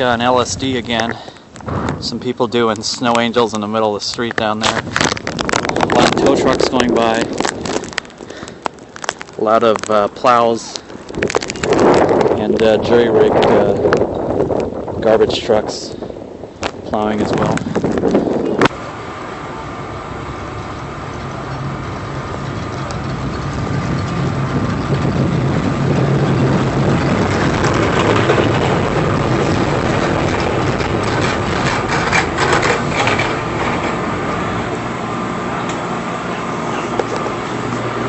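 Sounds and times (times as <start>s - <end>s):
rough scraping and crunching: 0.0s - 14.0s, 16.6s - 18.8s, 24.1s - 36.0s
heavy truck engine passing: 17.3s - 38.0s.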